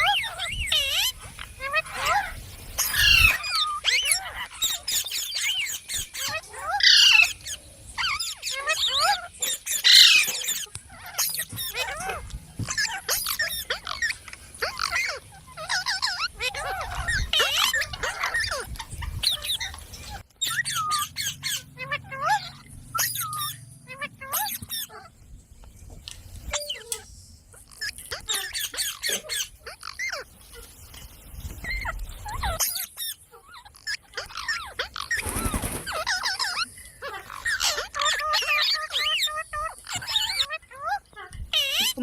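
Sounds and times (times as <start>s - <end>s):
parrot squawking and chirping: 0.0s - 25.2s, 26.4s - 31.0s, 31.6s - 42.0s
parrot screech: 1.7s - 4.8s.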